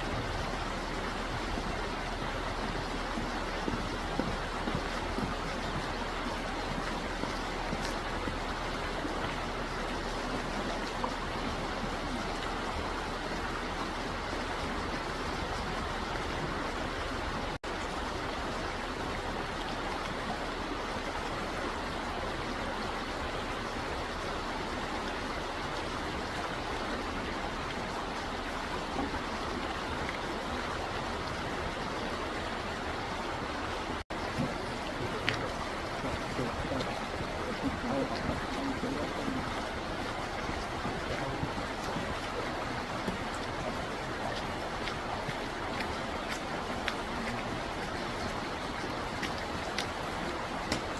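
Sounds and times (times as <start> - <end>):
stream water rushing: 0.0 - 50.9.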